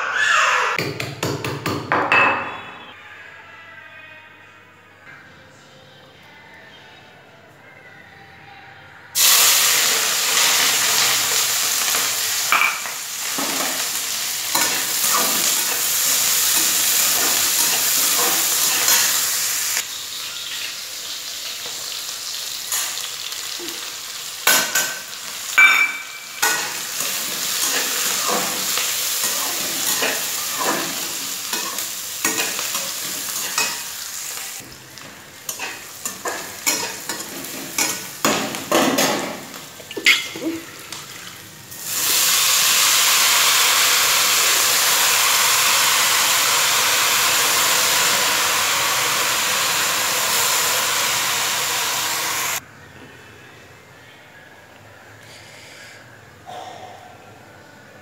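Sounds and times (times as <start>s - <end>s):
vegetables sizzling in hot oil: 9.2s - 52.6s.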